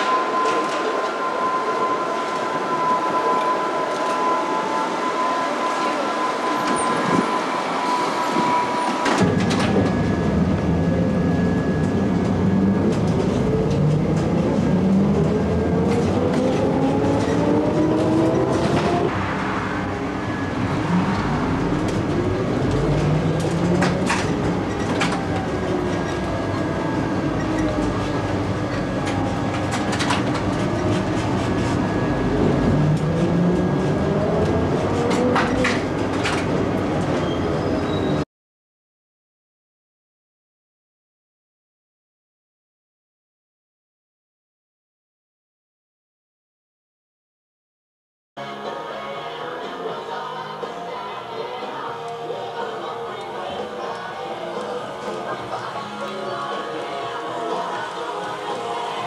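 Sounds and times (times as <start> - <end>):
electric train motor whine: 0.0 - 38.0
wheels clicking on track: 20.7 - 38.1.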